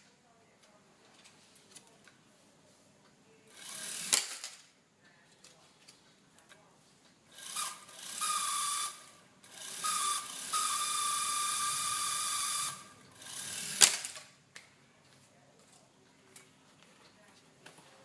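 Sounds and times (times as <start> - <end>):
small electric motor whirring: 7.3 - 14.1.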